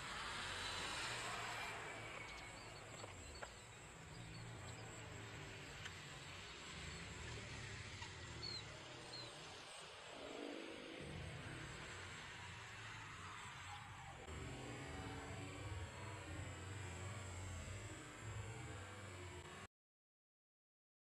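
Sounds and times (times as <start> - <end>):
bird chirps: 2.0 - 5.6.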